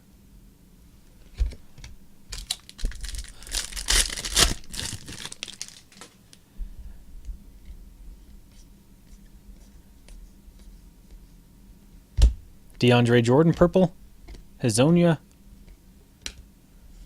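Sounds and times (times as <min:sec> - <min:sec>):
foil wrapper tearing and crinkling: 0:02.3 - 0:06.2.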